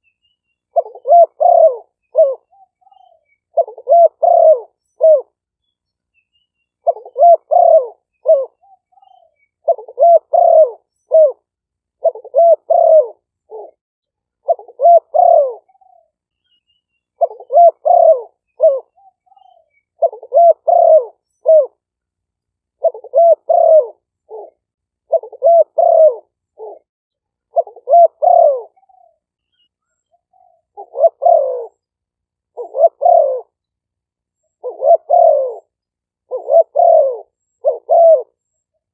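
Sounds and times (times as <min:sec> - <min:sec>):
doves cooing: 0:00.7 - 0:05.4, 0:06.8 - 0:13.8, 0:14.4 - 0:16.1, 0:17.2 - 0:21.8, 0:22.8 - 0:26.8, 0:27.5 - 0:29.2, 0:30.3 - 0:31.8, 0:32.5 - 0:33.6, 0:34.5 - 0:38.4.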